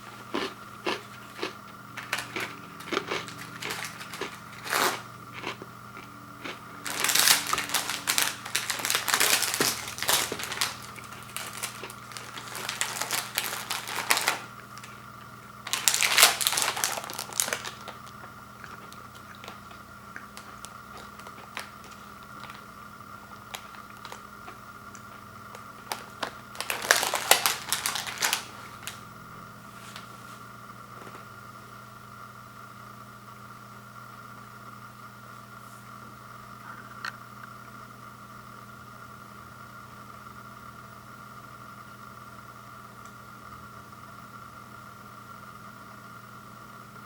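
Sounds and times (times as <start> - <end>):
plastic packaging crinkling: 0.0 - 5.6, 6.4 - 29.0.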